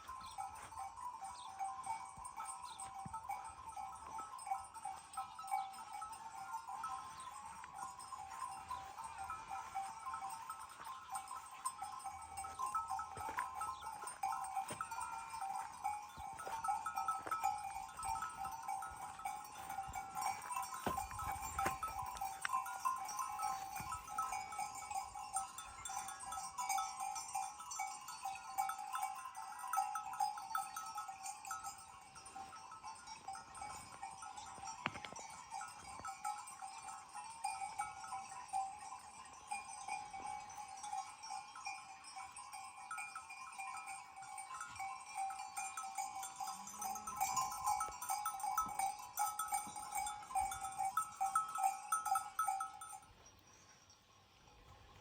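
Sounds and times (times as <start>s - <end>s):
livestock bells jingling: 0.0s - 55.0s.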